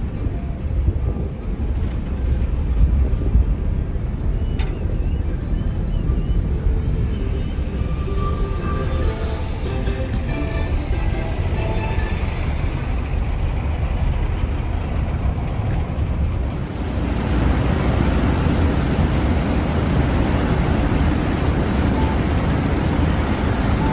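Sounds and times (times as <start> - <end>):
wind on microphone: 0.0 - 10.3, 12.5 - 23.9
boat engine rumble: 0.0 - 23.9
water rushing past hull: 11.2 - 23.9.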